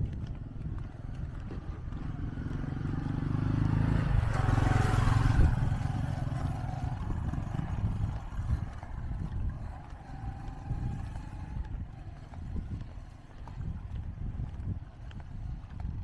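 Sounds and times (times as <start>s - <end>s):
small motor engine passing: 0.0s - 16.0s.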